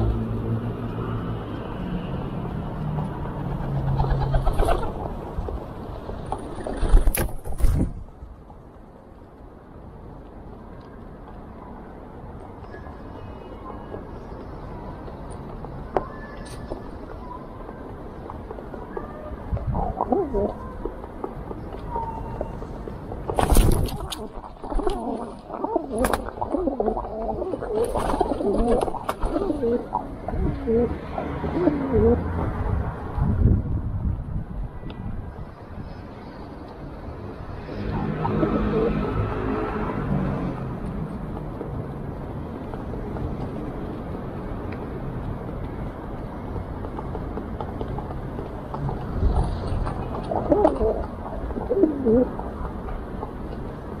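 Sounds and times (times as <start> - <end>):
low rumble of city traffic: 0.0 - 54.0
pigeons cooing: 19.8 - 20.6, 24.0 - 32.2, 50.1 - 52.4.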